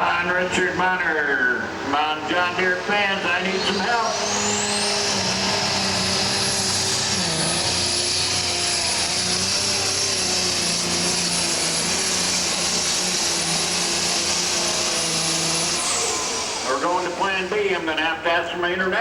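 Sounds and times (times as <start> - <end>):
diesel tractor engine drone: 0.0 - 19.0
turbocharger whistle: 3.5 - 7.9.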